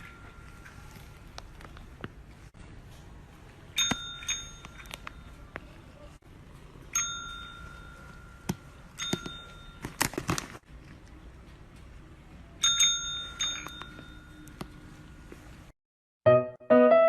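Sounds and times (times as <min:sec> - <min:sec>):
small metal bell ringing: 0:03.8 - 0:04.9, 0:06.9 - 0:09.8, 0:12.6 - 0:14.5.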